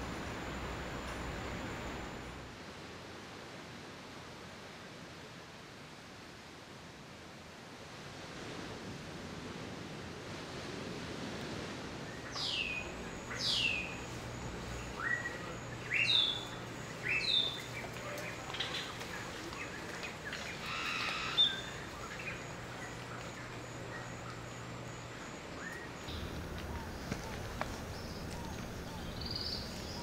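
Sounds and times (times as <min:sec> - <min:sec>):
steady background hiss: 0:00.0 - 0:30.0
bird calls: 0:12.2 - 0:24.7, 0:25.6 - 0:30.0.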